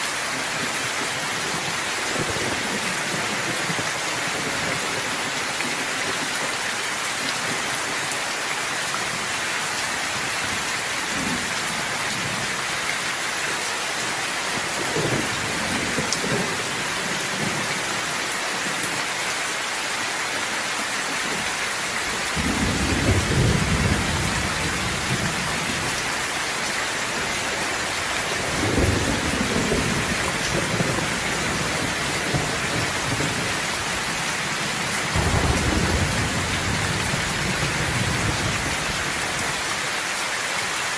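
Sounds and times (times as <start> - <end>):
steady rain falling: 0.0 - 40.9
thunder rumbling: 14.5 - 18.0, 22.3 - 26.2, 27.1 - 39.6.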